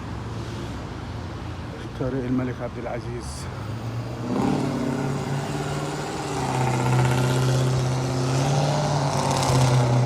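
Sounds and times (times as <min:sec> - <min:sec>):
car engine humming: 0:04.0 - 0:10.0.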